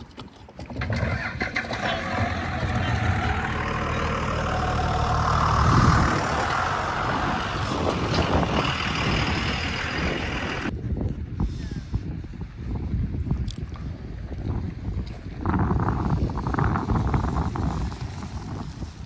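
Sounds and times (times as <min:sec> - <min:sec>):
truck engine running: 0:00.8 - 0:10.7.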